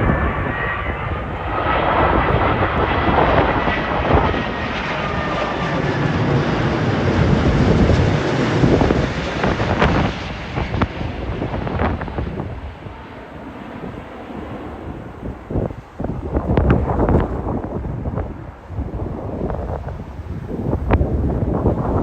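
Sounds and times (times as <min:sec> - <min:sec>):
jet airliner passing overhead: 0:00.0 - 0:22.0
wind buffeting microphone: 0:00.0 - 0:22.0.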